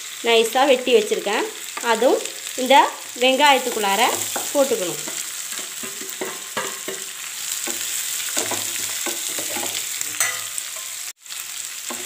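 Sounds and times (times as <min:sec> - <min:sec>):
vegetables sizzling in hot oil: 0:00.0 - 0:12.0
utensil scraping and knocking pan: 0:04.1 - 0:10.9.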